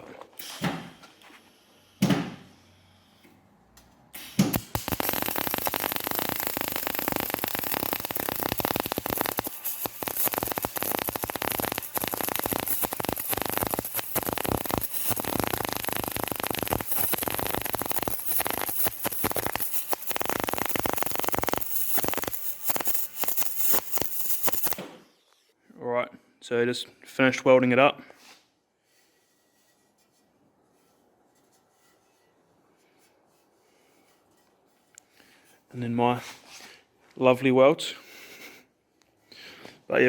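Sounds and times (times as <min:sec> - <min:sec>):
welder crackling: 0:04.2 - 0:25.0.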